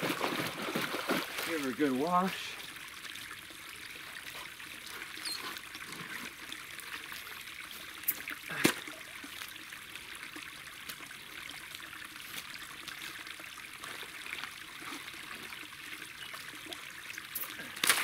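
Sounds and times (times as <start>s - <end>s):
water trickling: 0.0s - 18.0s.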